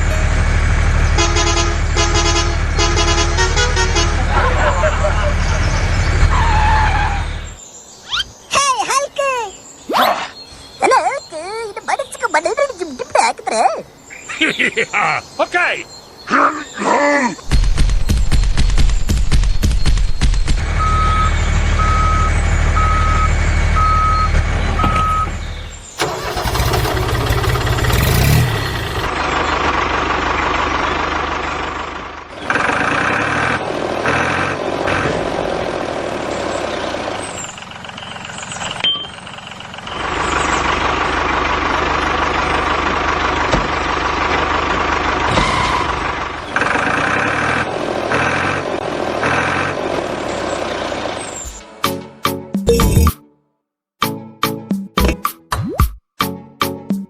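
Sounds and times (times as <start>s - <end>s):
vehicle engine running: 0.0s - 7.6s, 17.5s - 51.8s
reversing beeper: 20.6s - 26.3s.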